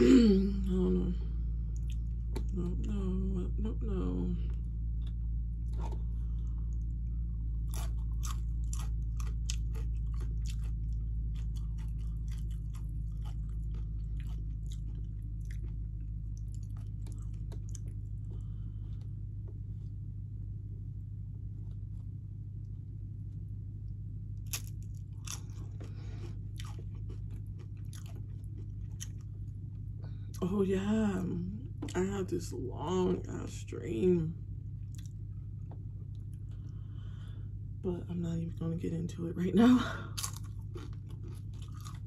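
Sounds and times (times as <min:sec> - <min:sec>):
low hum: 0:00.0 - 0:42.0
chips crunching while chewing: 0:07.6 - 0:18.1, 0:24.4 - 0:29.4, 0:40.1 - 0:42.0.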